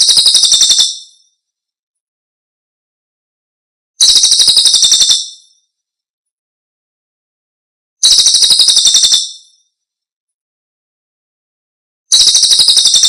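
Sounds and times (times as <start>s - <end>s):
bird call trill: 4.0s - 5.5s, 8.0s - 9.6s, 12.1s - 13.0s.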